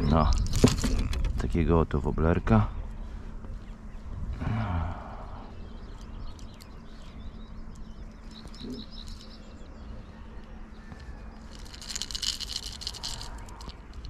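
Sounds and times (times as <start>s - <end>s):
low rumble: 0.0s - 14.0s
small birds chirping: 0.0s - 14.0s
rustling and scraping on mesh net: 10.9s - 14.0s.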